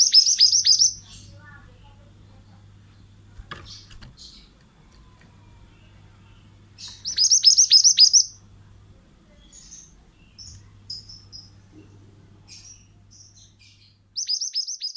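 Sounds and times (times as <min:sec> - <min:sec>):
bird singing whistled notes: 0:00.0 - 0:01.0, 0:06.8 - 0:08.4, 0:12.6 - 0:14.9
bird chirps: 0:00.0 - 0:01.4, 0:05.8 - 0:08.4, 0:09.4 - 0:11.6, 0:12.4 - 0:14.9.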